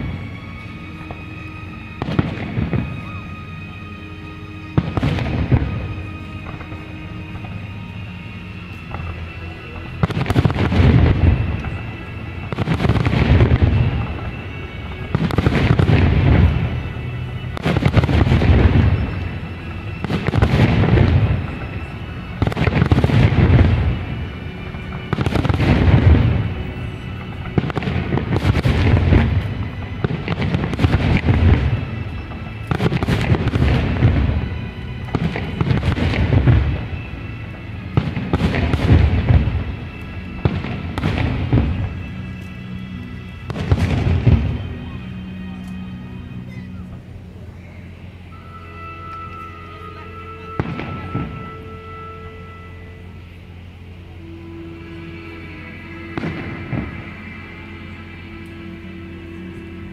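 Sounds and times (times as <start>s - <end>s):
fireworks booming: 1.9s - 3.4s, 4.7s - 8.2s, 8.8s - 45.4s, 50.5s - 52.2s, 55.9s - 57.4s.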